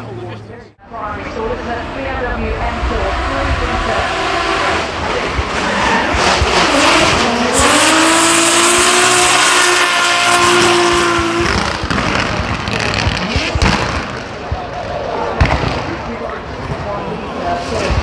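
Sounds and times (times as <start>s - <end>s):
racing car engine at high revs: 1.6s - 14.5s.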